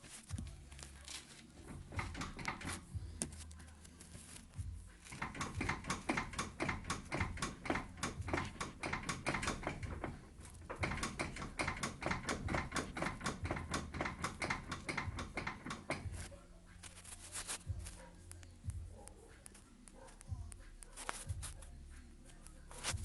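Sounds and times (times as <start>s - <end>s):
steering rack knocking: 1.6s - 2.9s, 5.1s - 16.4s.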